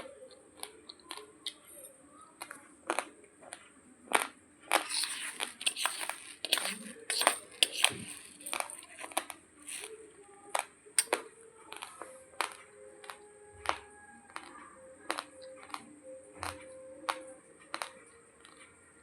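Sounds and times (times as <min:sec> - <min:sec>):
rice crunching between teeth: 0:04.1 - 0:10.0.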